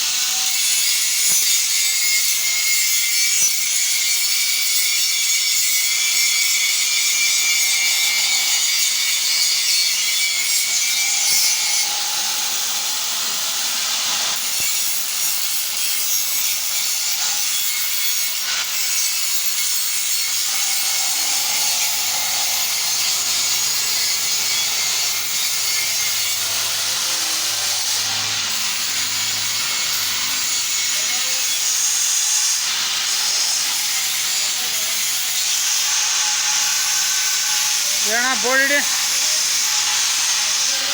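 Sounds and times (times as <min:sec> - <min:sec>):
metalworking tool hissing: 0:00.0 - 0:40.9.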